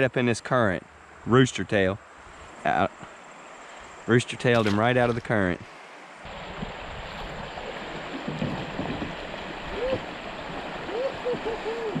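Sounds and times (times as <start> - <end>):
river current rushing: 2.1 - 12.0
bubbling gurgles: 7.3 - 12.0.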